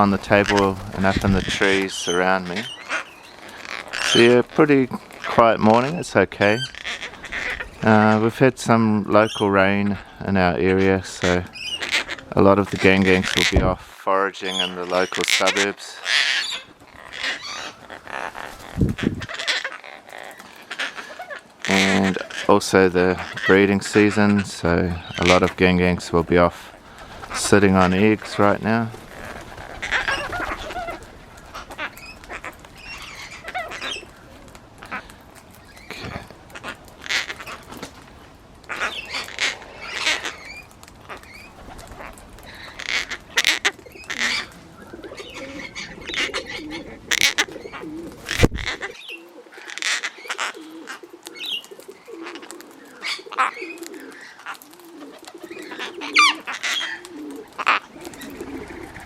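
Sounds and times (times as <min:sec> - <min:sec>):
cockatoos creaky calls: 0:00.0 - 0:59.0
pigeon cooing low: 0:29.0 - 0:37.7, 0:38.7 - 0:59.0.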